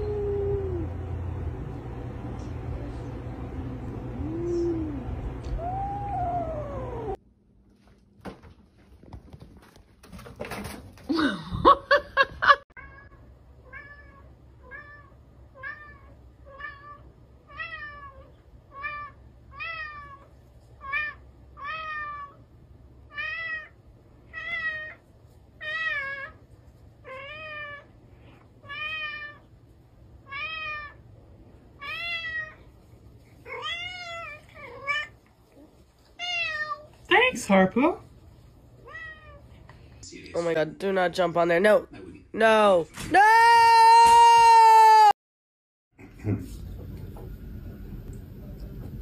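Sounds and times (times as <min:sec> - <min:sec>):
cat meowing: 0:04.3 - 0:07.2, 0:38.8 - 0:39.4.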